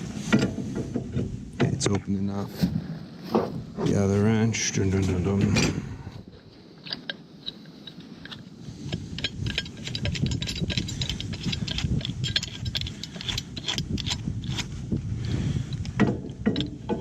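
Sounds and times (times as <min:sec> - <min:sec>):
steady low rumble: 0:00.0 - 0:17.0
wrenches clinking on metal: 0:06.8 - 0:14.8, 0:15.7 - 0:17.0.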